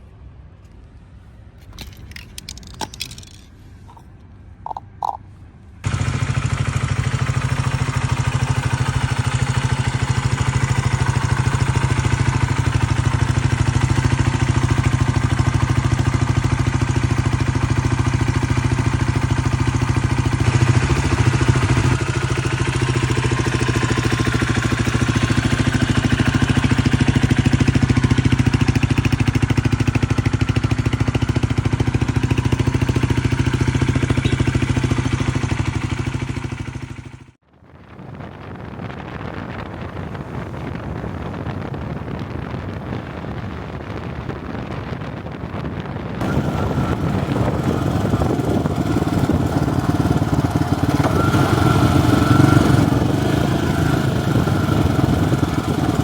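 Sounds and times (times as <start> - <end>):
faint clicks and scrapes: 1.6 - 5.2
motorcycle engine running: 1.7 - 4.1, 4.7 - 5.2, 5.8 - 37.9, 45.7 - 56.0.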